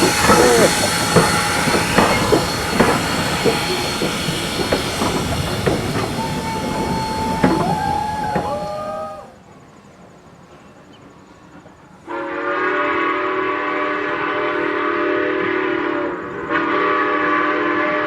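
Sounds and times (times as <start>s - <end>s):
wheels knocking over rail joints: 0.0s - 8.8s
train wheels squealing: 0.0s - 11.9s
train rolling past: 0.0s - 18.0s.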